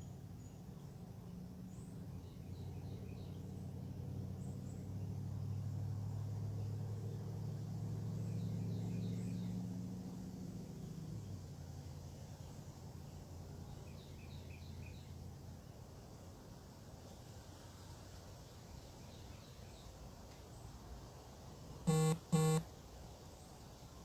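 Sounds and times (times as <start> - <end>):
small birds chirping: 0.0 - 5.7
distant engine passing by: 1.1 - 13.8.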